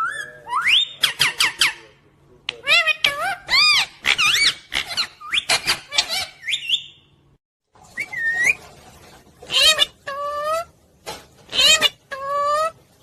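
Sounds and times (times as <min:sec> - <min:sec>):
parrot chirping and whistling: 0:00.0 - 0:01.8, 0:02.7 - 0:07.1, 0:07.9 - 0:08.7.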